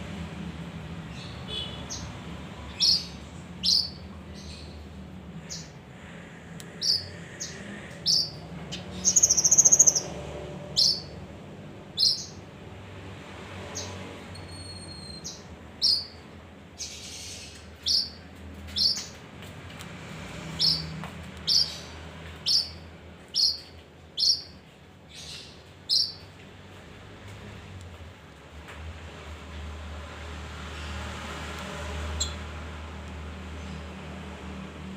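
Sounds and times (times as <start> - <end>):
songbird chirping: 1.1 - 5.8, 6.6 - 11.2, 12.0 - 12.4, 13.7 - 19.2, 20.5 - 26.4
buzzy bird trill: 2.7 - 4.7, 6.8 - 10.1, 12.0 - 12.4, 21.5 - 26.2.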